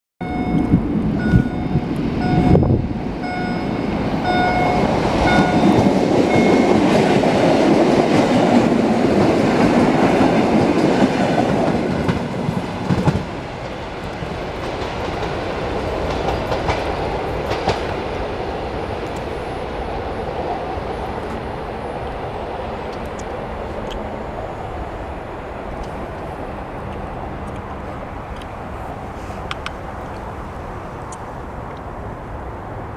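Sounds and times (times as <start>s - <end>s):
electronic beeping: 0.2s - 6.9s
train wheels on rails: 0.2s - 32.8s.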